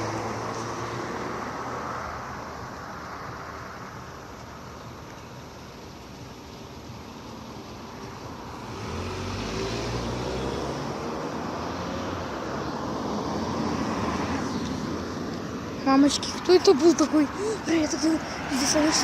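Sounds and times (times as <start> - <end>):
vehicle driving past: 8.5 - 15.3.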